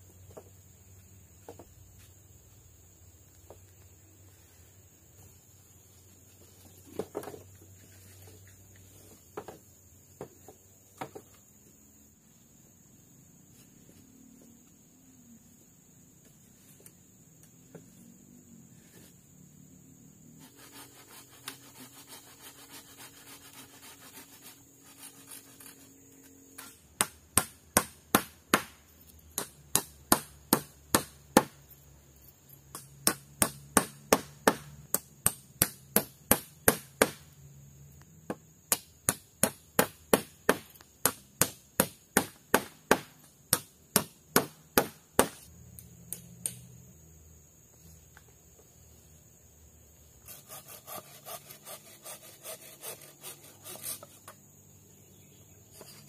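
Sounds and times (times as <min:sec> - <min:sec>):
hammering on wood: 0:26.6 - 0:28.8, 0:29.4 - 0:31.6, 0:32.7 - 0:37.3, 0:38.3 - 0:45.4.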